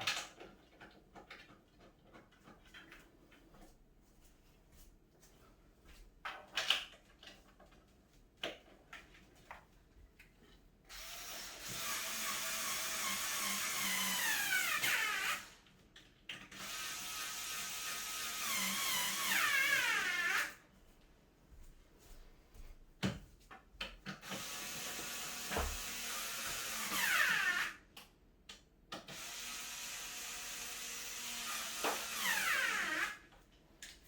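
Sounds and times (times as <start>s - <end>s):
power drill driving screws: 10.9s - 15.6s, 16.4s - 20.6s, 24.2s - 27.8s, 29.0s - 33.3s.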